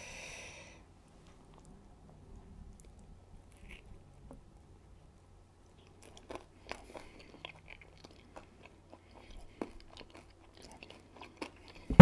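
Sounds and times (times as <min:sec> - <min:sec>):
faint chewing mouth clicks: 0:05.6 - 0:11.9.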